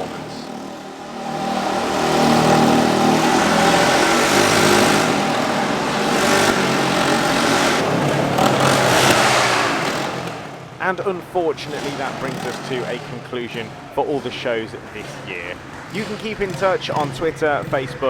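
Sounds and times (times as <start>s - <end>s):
motorcycle engines revving: 0.0s - 18.0s.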